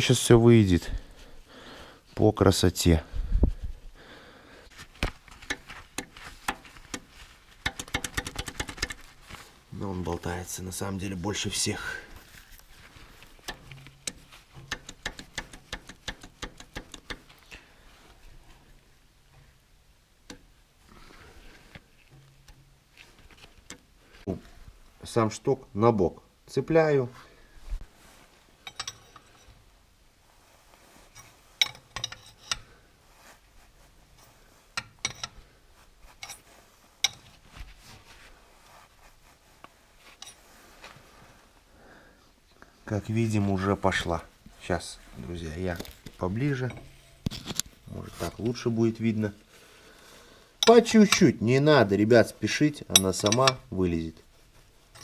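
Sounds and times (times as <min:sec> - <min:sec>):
sharp clicks of metal parts: 0:07.6 - 0:09.0, 0:13.4 - 0:17.3, 0:31.6 - 0:32.6
metallic clicks and clinks: 0:28.6 - 0:29.5.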